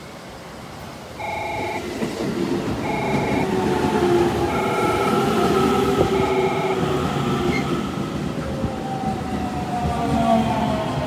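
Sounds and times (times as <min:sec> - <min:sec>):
train running noise: 0:00.0 - 0:11.0
two-tone electronic warning chime: 0:01.2 - 0:01.9, 0:02.8 - 0:03.6, 0:04.5 - 0:05.4, 0:06.0 - 0:07.0
train whine falling in pitch: 0:01.2 - 0:02.1, 0:02.8 - 0:07.8.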